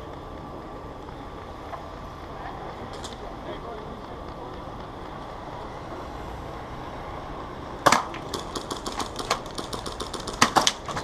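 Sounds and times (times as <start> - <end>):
airsoft gunshots: 7.8 - 11.0.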